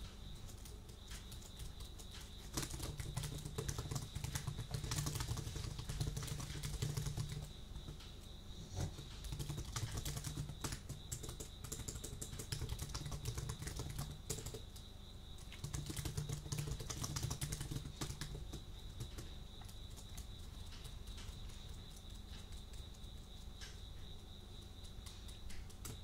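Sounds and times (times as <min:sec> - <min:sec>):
keyboard typing: 0:00.0 - 0:08.1, 0:08.9 - 0:23.9, 0:24.5 - 0:26.0.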